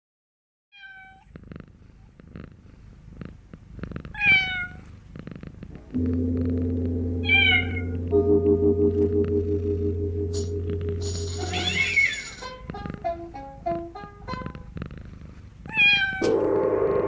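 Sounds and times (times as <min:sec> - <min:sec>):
cat meowing: 0:00.7 - 0:01.2, 0:04.1 - 0:04.8, 0:15.7 - 0:16.2
low droning tone: 0:05.9 - 0:12.4, 0:16.2 - 0:17.0.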